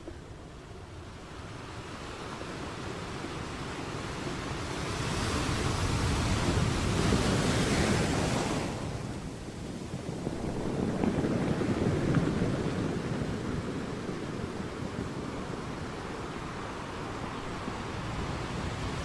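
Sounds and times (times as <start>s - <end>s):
ocean waves breaking: 0.0s - 19.0s.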